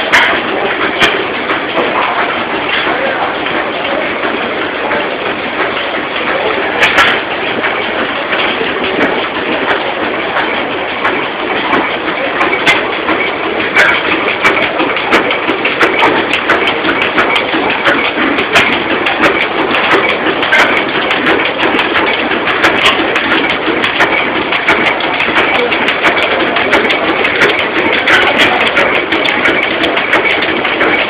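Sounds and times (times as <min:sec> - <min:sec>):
machinery clattering: 0:00.0 - 0:31.0
sharp clicks and ticks: 0:00.0 - 0:31.0.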